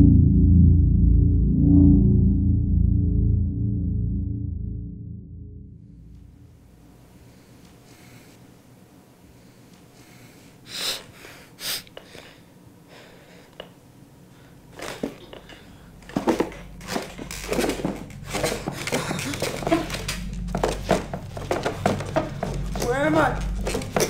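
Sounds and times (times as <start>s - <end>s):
person breathing and sniffing: 9.4s - 13.6s
rustling and scuffling: 14.7s - 24.0s.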